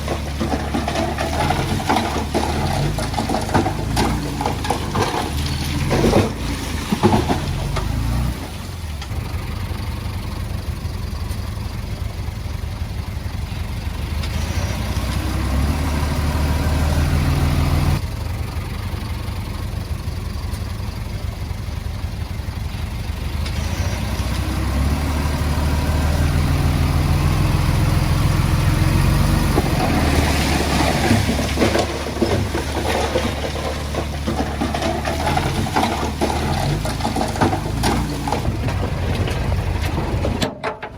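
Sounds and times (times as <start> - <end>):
clattering and scraping: 0.0 - 9.2, 26.4 - 40.9
diesel engine working: 0.0 - 40.9.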